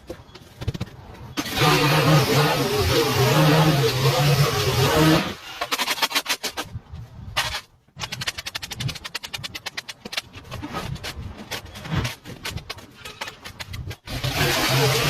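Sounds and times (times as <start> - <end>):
rapid sharp clicks: 7.4 - 10.4.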